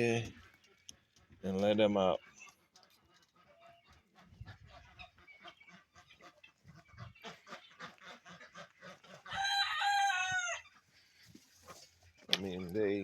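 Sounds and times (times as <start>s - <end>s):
chickens clucking: 0.0s - 13.0s
rooster crowing: 9.3s - 10.6s.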